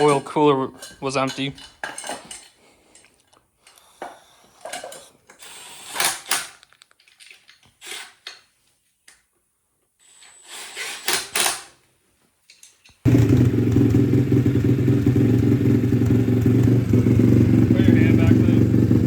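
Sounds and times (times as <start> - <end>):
handling noises: 0.0 - 9.2
motorcycle engine running: 13.1 - 19.0.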